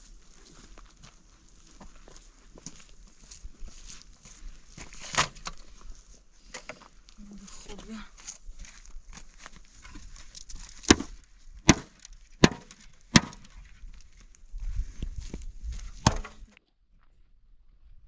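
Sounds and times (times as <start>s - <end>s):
sharp chopping blows: 11.7s - 13.5s.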